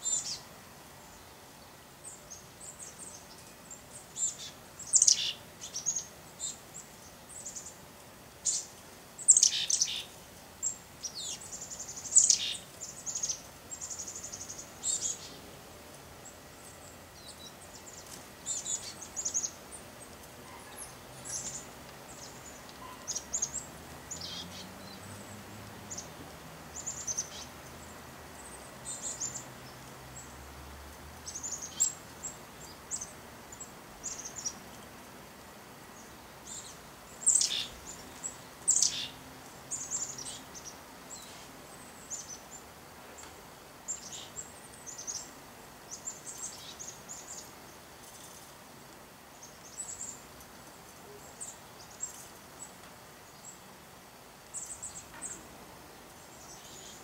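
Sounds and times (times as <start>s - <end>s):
small songbirds chirping: 0.0s - 57.0s.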